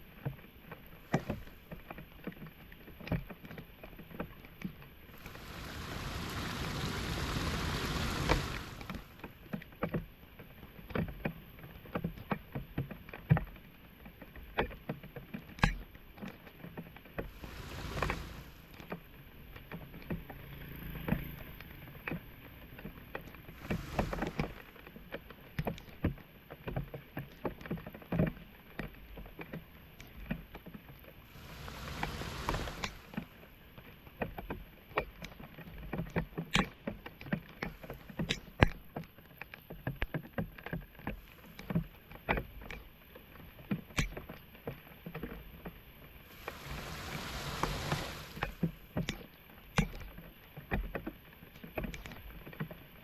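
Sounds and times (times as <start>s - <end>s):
water swishing surges: 5.1s - 9.3s, 17.2s - 19.0s, 23.4s - 24.8s, 31.2s - 33.6s, 46.2s - 48.9s
water splashing and sloshing: 5.1s - 9.4s, 17.2s - 19.0s, 23.5s - 24.9s, 31.2s - 33.4s, 46.2s - 49.0s.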